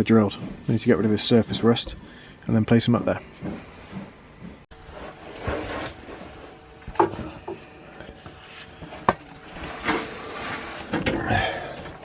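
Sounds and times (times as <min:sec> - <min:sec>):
scraping rustle: 0:04.8 - 0:07.5, 0:08.1 - 0:11.2.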